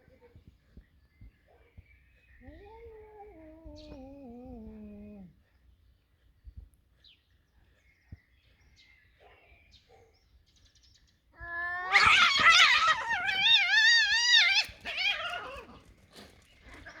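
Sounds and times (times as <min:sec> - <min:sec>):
cat yowling: 0:11.4 - 0:15.8.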